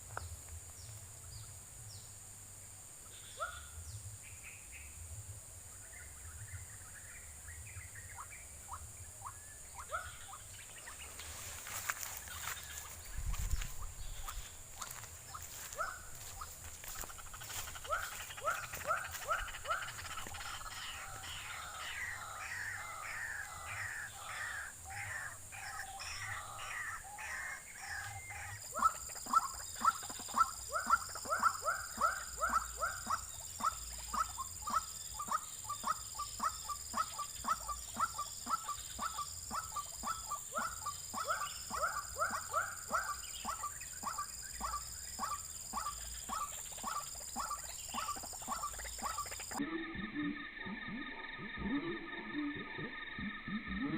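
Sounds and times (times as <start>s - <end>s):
waterhen calling: 11.7s - 50.0s.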